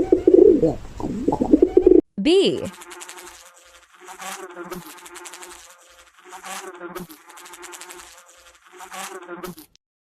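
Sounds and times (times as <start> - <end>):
bee buzzing in flight: 2.7 - 9.8.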